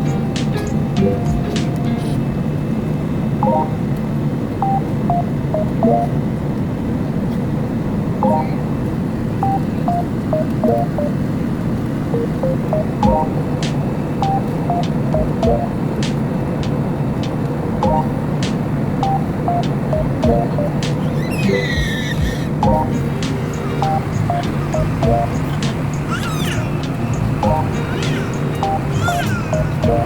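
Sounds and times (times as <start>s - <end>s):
electronic beeping melody: 0.0s - 1.8s, 3.4s - 3.9s, 4.6s - 6.2s, 8.2s - 8.7s, 9.4s - 11.2s, 12.2s - 13.4s, 14.2s - 15.8s, 17.8s - 18.2s, 19.0s - 26.0s, 26.7s - 30.0s
low steady rumble: 24.0s - 25.7s, 26.7s - 27.9s.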